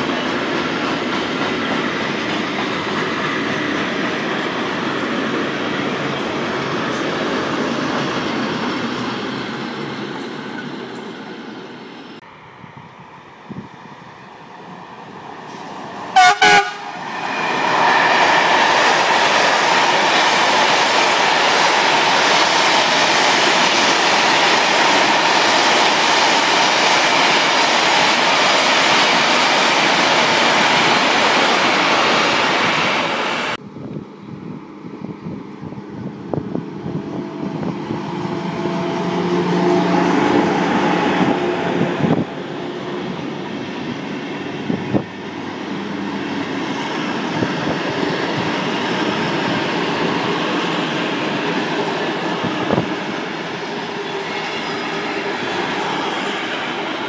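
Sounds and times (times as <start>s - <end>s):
freight train wheels rushing on rail: 0.0s - 57.0s
passenger coaches rolling past: 0.0s - 57.0s
locomotive horn blasts: 16.2s - 17.0s.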